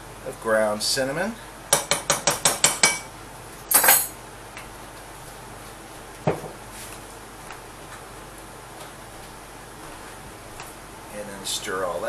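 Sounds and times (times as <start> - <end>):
metal spoon tapping a saucepan: 1.7 - 3.1.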